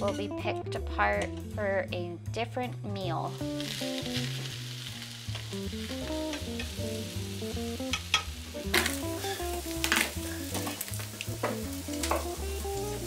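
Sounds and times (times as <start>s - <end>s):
background music plucked bass: 0.0s - 13.0s
onions sizzling in a skillet: 3.3s - 13.0s.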